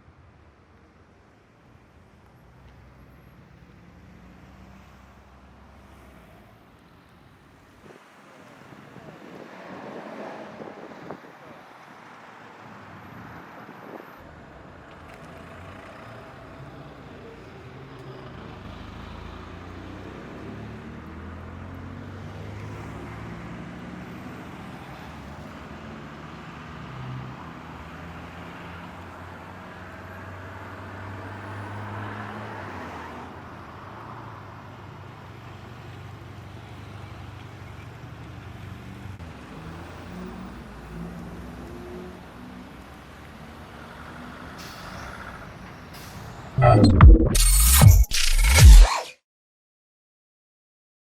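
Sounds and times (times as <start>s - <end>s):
cars passing: 3.0s - 14.5s, 15.1s - 34.4s.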